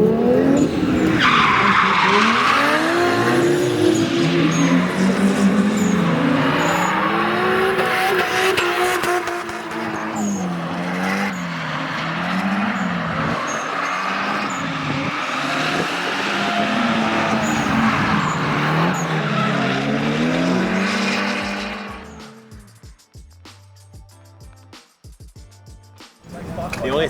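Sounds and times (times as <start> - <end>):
car engine revving: 0.0 - 22.8, 26.3 - 27.0
tyre squeal: 0.6 - 8.6, 9.7 - 22.3.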